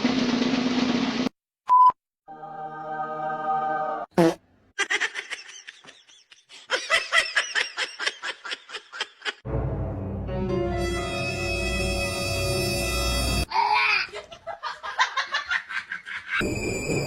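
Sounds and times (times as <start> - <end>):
high-pitched laughter: 4.8 - 9.4, 13.5 - 16.4
music: 9.5 - 13.5.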